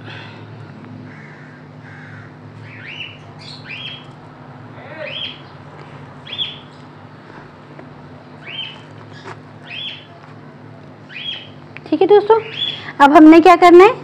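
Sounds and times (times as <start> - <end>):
steady low hum: 0.0 - 14.0
bird chirping: 2.6 - 4.1, 5.0 - 5.6, 6.2 - 6.9, 8.4 - 10.2, 11.1 - 11.6, 12.4 - 12.9.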